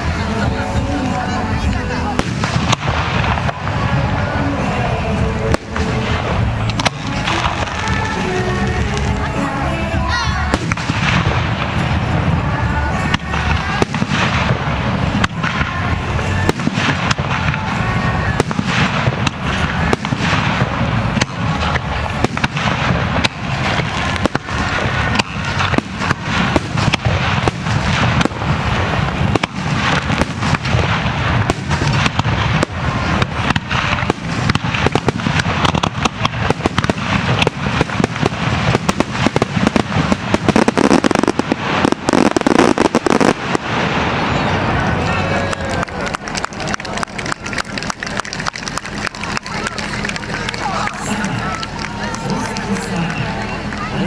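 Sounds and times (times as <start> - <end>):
fireworks crackling: 0.0 - 54.0
fireworks shells bursting: 0.0 - 54.0.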